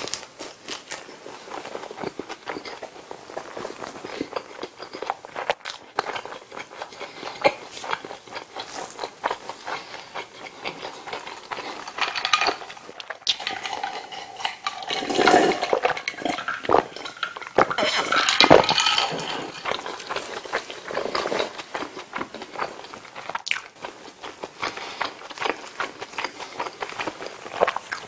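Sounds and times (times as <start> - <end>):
chewing with wet smacking: 0.0 - 14.9, 15.7 - 28.0
gulping from a glass bottle: 9.9 - 21.6.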